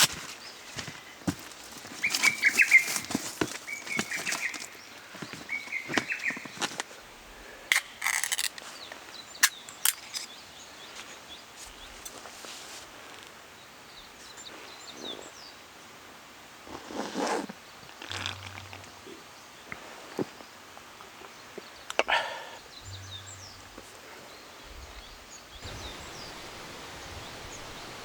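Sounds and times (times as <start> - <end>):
rustle: 0.0 - 21.9, 22.6 - 28.0
birds chirping: 1.8 - 12.3, 17.6 - 28.0.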